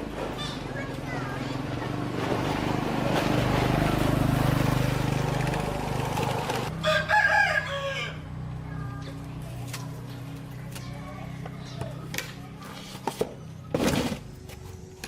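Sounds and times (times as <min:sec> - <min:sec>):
rooster crowing: 0:06.7 - 0:08.3.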